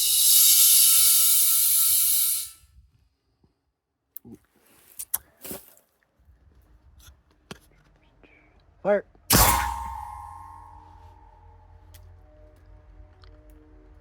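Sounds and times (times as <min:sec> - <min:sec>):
compressed air hissing: 0:00.0 - 0:02.6.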